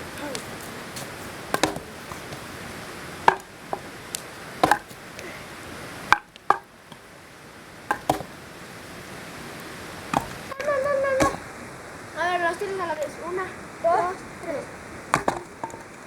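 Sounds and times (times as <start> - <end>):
steady background hiss: 0.0 - 16.0
sharp wooden knocks and cracks: 0.2 - 2.5, 3.2 - 3.9, 4.6 - 5.0, 6.1 - 7.0, 7.9 - 8.3, 10.1 - 10.4, 15.1 - 15.9.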